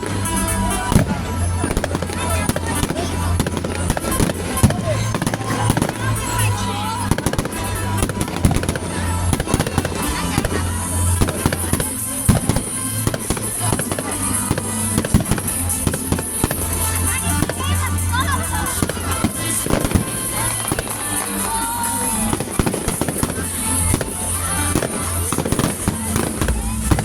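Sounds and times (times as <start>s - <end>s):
fireworks crackling and banging: 0.0s - 27.0s
music with steady bass line: 0.0s - 27.0s.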